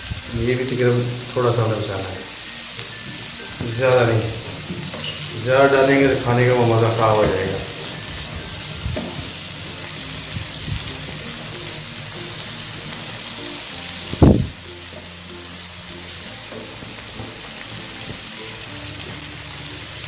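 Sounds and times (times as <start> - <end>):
background music: 0.0 - 20.0
food sizzling in a frying pan: 0.0 - 20.0
spatula stirring: 2.3 - 14.1.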